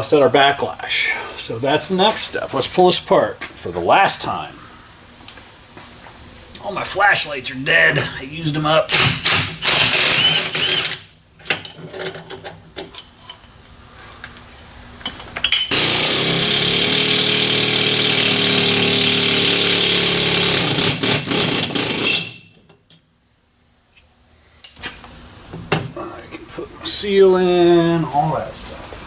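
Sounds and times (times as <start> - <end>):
power tool running: 8.7 - 11.1, 15.7 - 22.4
parts being handled: 24.0 - 26.0.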